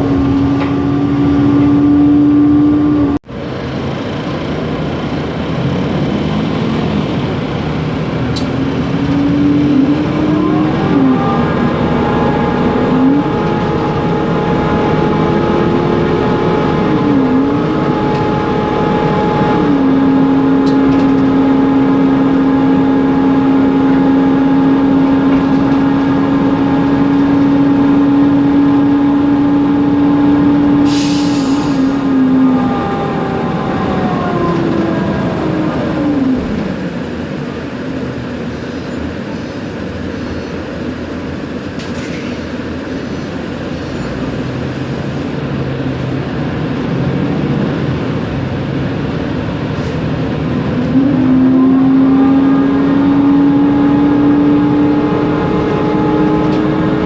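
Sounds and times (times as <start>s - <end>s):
bus engine whine from inside: 0.0s - 57.0s
air hiss: 30.8s - 31.9s.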